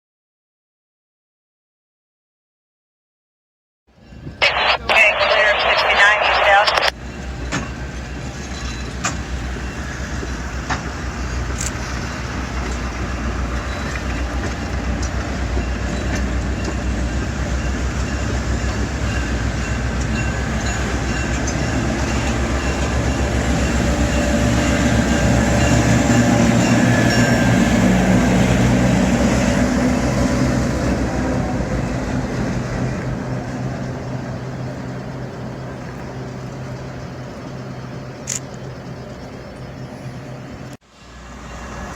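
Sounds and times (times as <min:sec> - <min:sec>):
diesel locomotive passing: 0:06.9 - 0:41.9.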